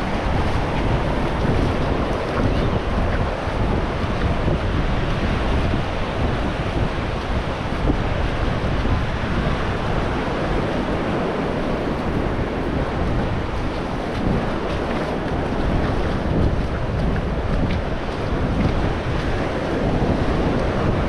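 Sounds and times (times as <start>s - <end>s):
ocean surf washing onto beach: 0.0s - 21.0s
wind buffeting microphone: 0.0s - 21.0s.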